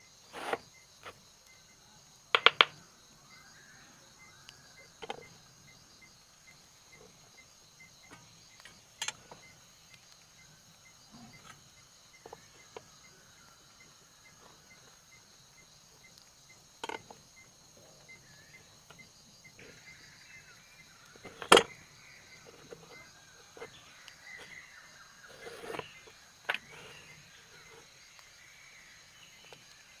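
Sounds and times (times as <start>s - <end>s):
insect chirring: 0.0s - 30.0s
woodworking knocks and taps: 2.3s - 2.8s.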